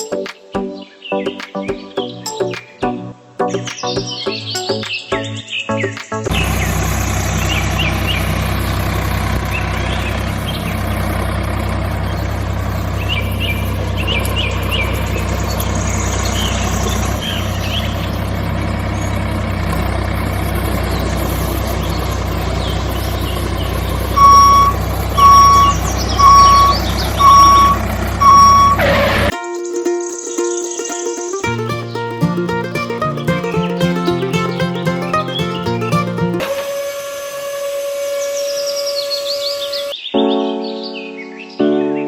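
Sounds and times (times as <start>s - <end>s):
vehicle engine droning: 6.3s - 29.3s, 31.1s - 39.9s
birds chirping: 7.4s - 36.5s
reversing alarm beeps: 24.2s - 29.3s.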